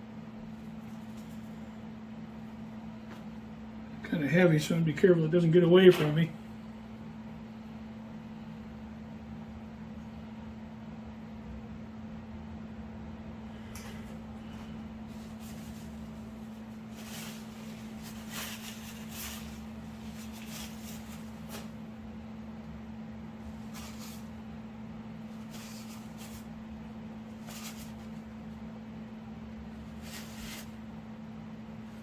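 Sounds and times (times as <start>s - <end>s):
low electrical hum: 0.0s - 32.0s
scrapes and rustles of tools: 13.8s - 21.8s, 23.4s - 24.4s, 25.3s - 26.6s, 27.3s - 28.3s, 29.8s - 30.8s.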